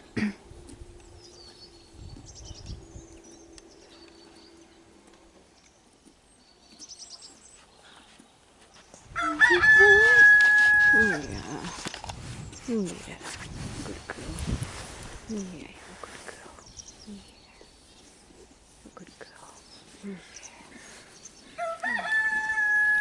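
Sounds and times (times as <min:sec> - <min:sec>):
rooster crowing: 0:09.2 - 0:11.2, 0:21.6 - 0:23.0
small birds chirping faintly: 0:13.8 - 0:22.5.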